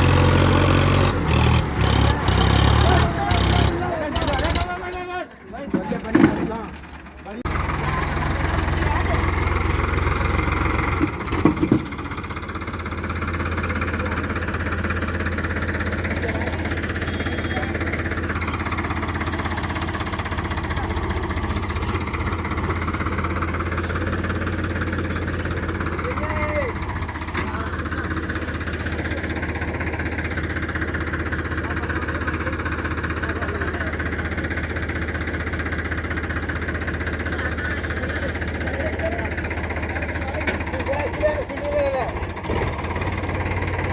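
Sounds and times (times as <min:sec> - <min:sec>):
tractor diesel engine running: 0:00.0 - 0:43.9
sharp engine knocks: 0:05.6 - 0:07.5, 0:10.7 - 0:12.4, 0:40.2 - 0:43.9.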